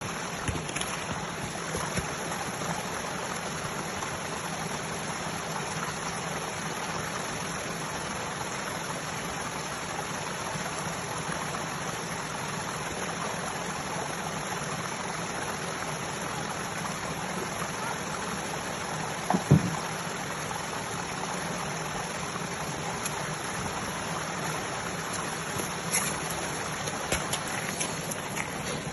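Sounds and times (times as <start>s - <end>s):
flowing water rushing: 0.0s - 28.9s
low thump: 19.3s - 19.8s.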